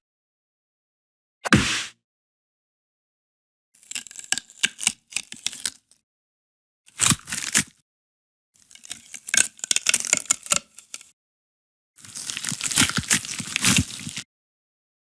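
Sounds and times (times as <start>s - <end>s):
crackling tearing noise: 3.8s - 6.0s, 6.9s - 7.8s, 8.6s - 11.1s, 12.0s - 14.3s.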